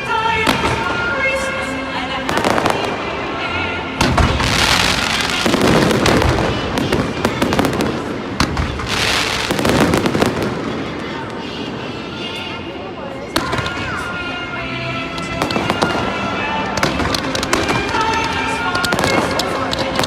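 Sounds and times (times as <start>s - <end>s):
background music: 0.0s - 20.0s
fireworks bangs and crackling: 0.4s - 1.0s, 2.3s - 3.1s, 4.0s - 11.4s, 15.4s - 20.0s.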